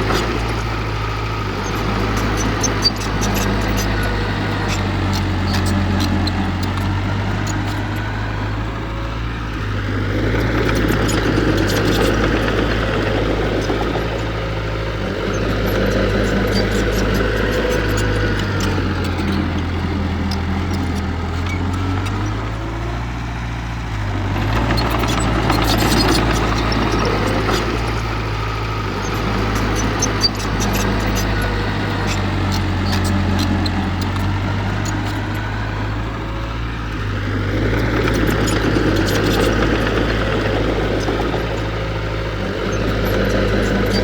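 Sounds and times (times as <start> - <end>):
heavy diesel engine running: 0.0 - 44.0
light clicks and clatter: 9.5 - 22.9, 24.3 - 44.0.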